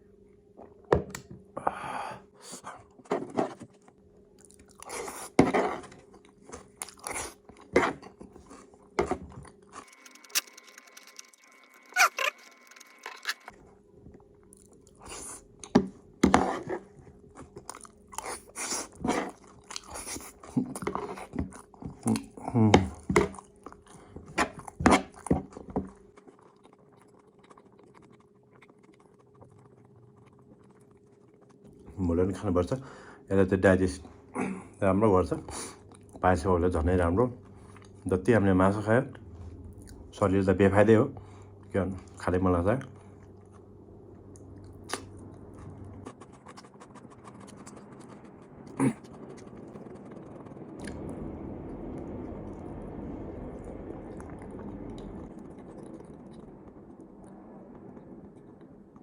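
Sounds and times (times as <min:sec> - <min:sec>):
low steady hum: 0:00.0 - 0:59.0
mouth smacking while chewing: 0:04.4 - 0:05.4, 0:06.0 - 0:13.5, 0:16.7 - 0:31.9, 0:44.3 - 0:50.1.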